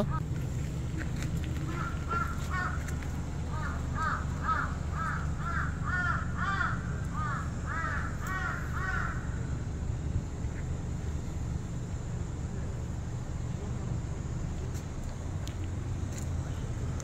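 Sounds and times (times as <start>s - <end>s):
bird harsh calls: 1.6s - 2.9s, 3.5s - 9.5s.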